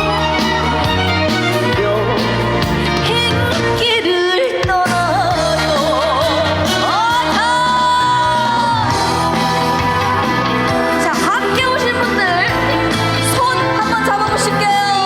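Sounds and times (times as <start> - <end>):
amplified backing music: 0.0 - 15.0
woman singing: 2.9 - 9.4, 10.9 - 15.0.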